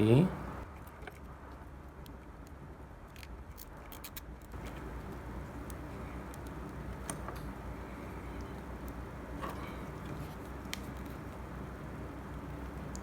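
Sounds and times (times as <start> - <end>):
light clicks of small parts: 0.8 - 7.6.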